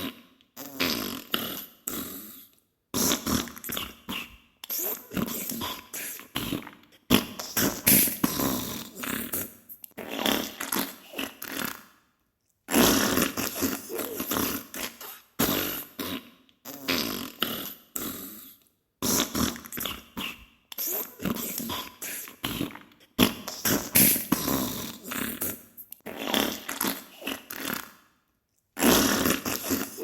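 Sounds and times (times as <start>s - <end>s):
fart bursts: 0.0s - 2.2s, 3.0s - 3.8s, 6.4s - 11.8s, 12.7s - 17.8s, 19.0s - 20.3s, 20.9s - 28.0s, 28.8s - 30.0s.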